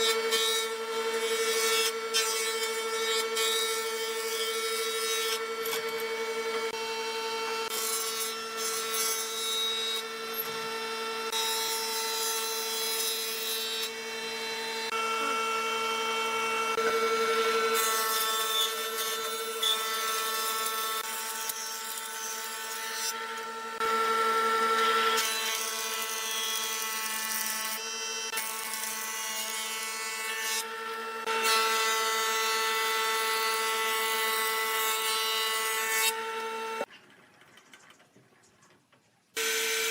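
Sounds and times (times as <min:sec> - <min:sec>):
power tool whining: 0:09.7 - 0:29.6, 0:36.1 - 0:36.9.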